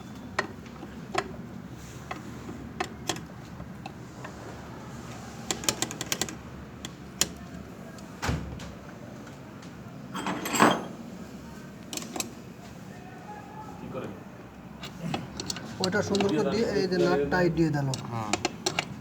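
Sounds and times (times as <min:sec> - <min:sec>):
metallic clicks and taps: 0:05.5 - 0:07.5, 0:11.9 - 0:12.3, 0:17.9 - 0:19.0.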